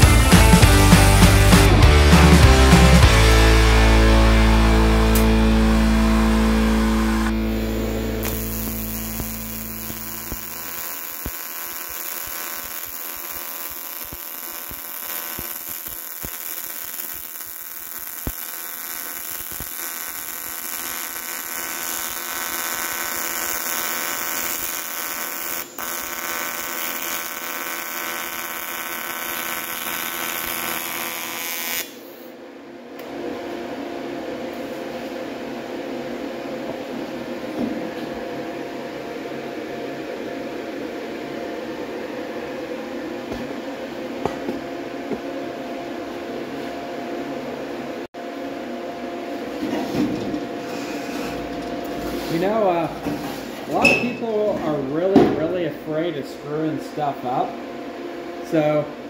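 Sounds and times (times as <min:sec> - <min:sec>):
welding arc buzzing hiss: 0:00.0 - 0:32.4, 0:49.3 - 0:54.5.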